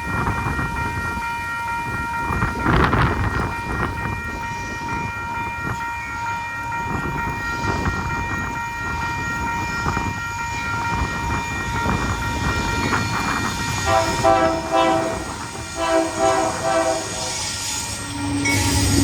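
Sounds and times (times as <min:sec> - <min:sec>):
wind buffeting microphone: 0:00.0 - 0:18.2
train rumbling past: 0:00.0 - 0:19.0
locomotive horn chord: 0:13.8 - 0:17.6.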